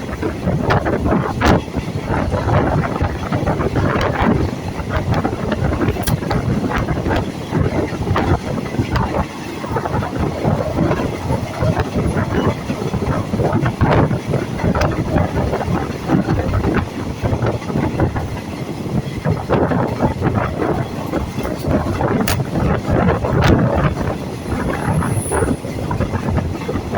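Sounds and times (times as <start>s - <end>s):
train rumble: 0.0s - 26.9s
train wheels clattering: 0.6s - 26.9s.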